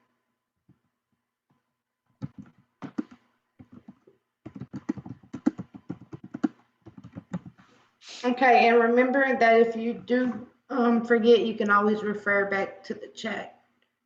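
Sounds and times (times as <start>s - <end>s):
typing on computer keyboard: 2.2s - 7.6s.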